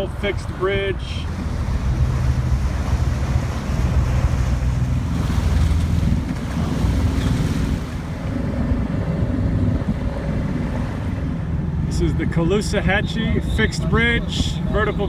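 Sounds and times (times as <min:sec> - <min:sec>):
water noise: 0:00.0 - 0:15.0
wind buffeting microphone: 0:00.0 - 0:15.0.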